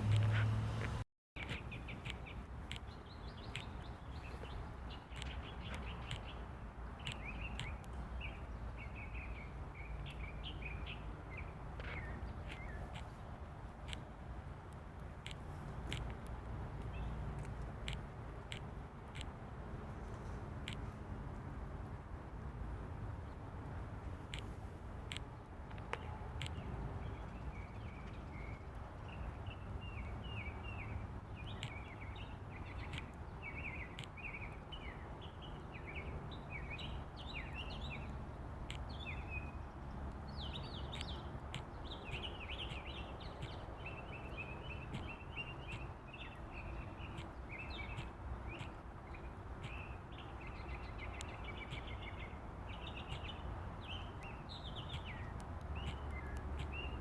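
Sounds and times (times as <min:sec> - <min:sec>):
sharp clicks: 0:14.7 - 0:19.4, 0:24.3 - 0:26.6, 0:31.6 - 0:31.8, 0:33.9 - 0:34.2, 0:54.9 - 0:57.0.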